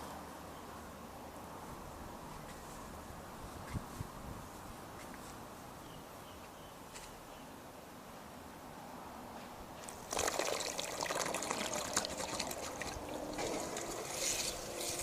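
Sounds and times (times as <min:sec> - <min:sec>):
faint pump motor hum: 0:00.0 - 0:15.0
water splashing and trickling: 0:09.8 - 0:15.0.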